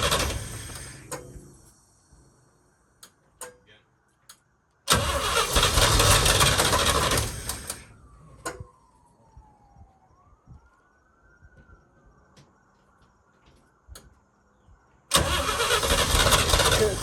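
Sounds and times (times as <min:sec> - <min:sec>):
engine starter cranking: 0:00.0 - 0:01.4, 0:04.9 - 0:07.9, 0:15.1 - 0:17.0
faint falling whine: 0:07.6 - 0:15.1.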